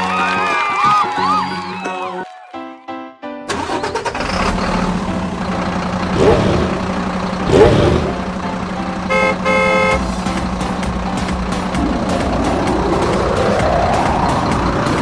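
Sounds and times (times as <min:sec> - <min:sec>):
toy horn toots: 0:09.1 - 0:10.1.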